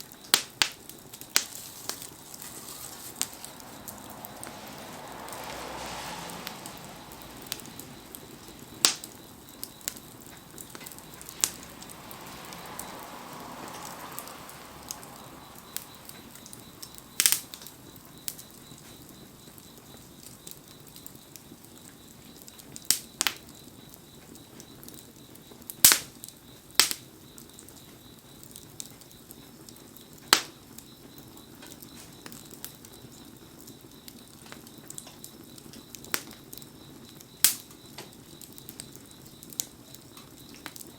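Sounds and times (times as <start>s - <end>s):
wood fire hissing: 0.0s - 40.9s
wood crackling pops: 0.1s - 19.0s, 37.4s - 40.9s.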